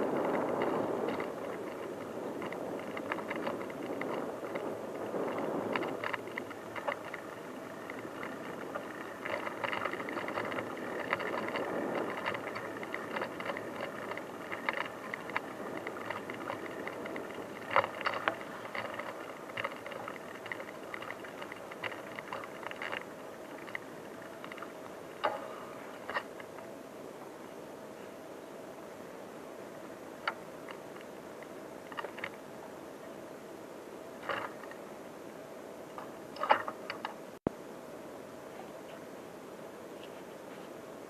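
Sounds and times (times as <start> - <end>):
bike rattling and clicking: 0.0 - 26.8, 30.2 - 32.5, 34.2 - 34.9, 35.9 - 37.3
bicycle tyres on rough track: 0.0 - 37.4.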